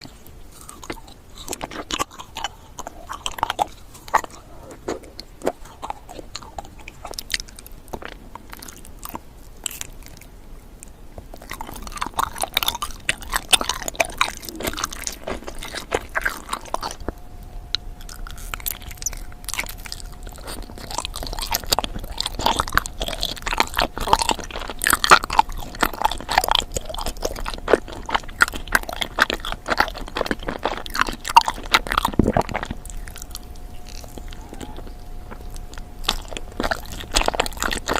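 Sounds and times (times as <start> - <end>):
crunching and chewing: 0.0 - 37.9.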